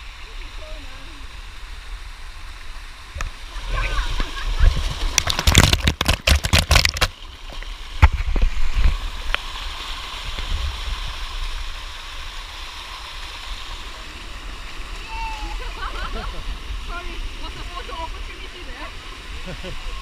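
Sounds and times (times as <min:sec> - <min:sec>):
waterfall rushing: 0:00.0 - 0:07.1, 0:07.9 - 0:20.0
sharp knocks and splashes: 0:04.6 - 0:09.5.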